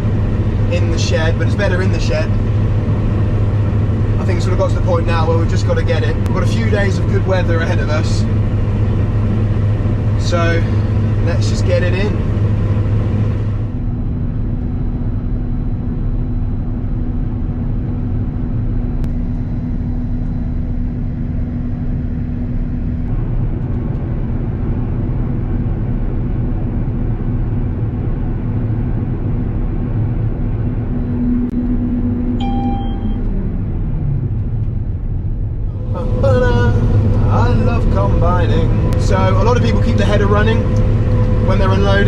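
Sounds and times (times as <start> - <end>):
combine harvester droning: 0.0 - 42.0
drive winding down: 30.5 - 42.0
short electronic beep: 32.3 - 33.4.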